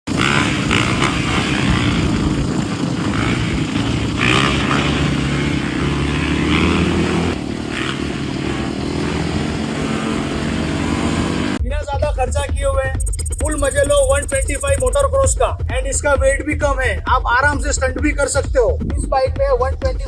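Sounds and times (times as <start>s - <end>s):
dirt bike engine revving: 0.0s - 11.6s.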